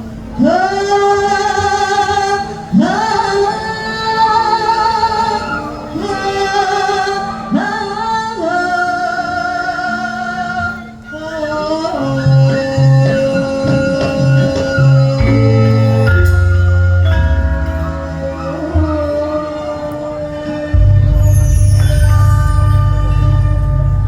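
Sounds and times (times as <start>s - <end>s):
gamelan playing: 13.9s - 20.1s, 20.7s - 24.0s.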